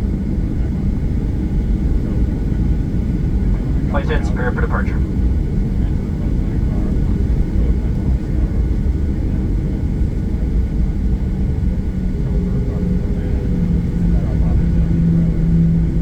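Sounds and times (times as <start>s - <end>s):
airplane cabin rumble: 3.2s - 5.3s.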